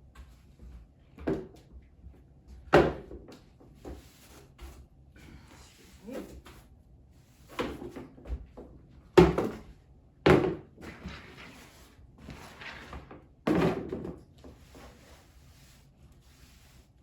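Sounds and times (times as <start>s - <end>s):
household knocks and thumps: 7.6s - 14.2s.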